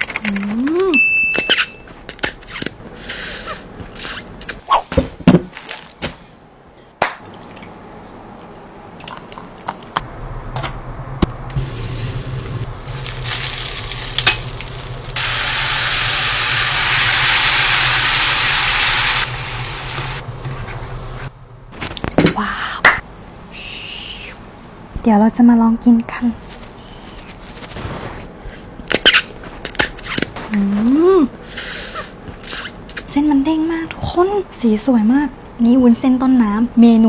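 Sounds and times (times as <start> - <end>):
loud sizzling: 11.6 - 21.4.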